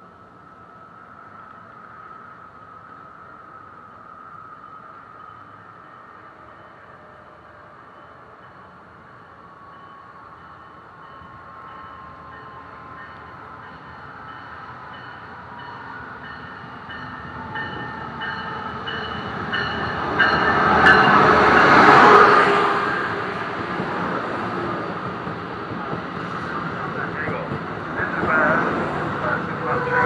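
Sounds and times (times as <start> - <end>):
passenger train passing: 0.0 - 30.0.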